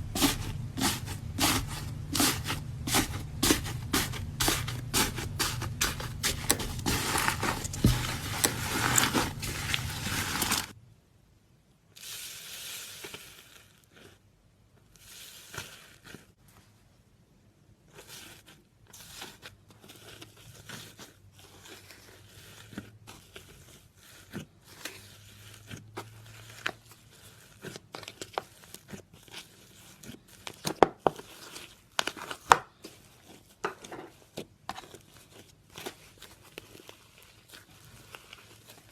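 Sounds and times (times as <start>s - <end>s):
dried slime crust crackling: 0.0s - 10.7s, 34.2s - 38.9s.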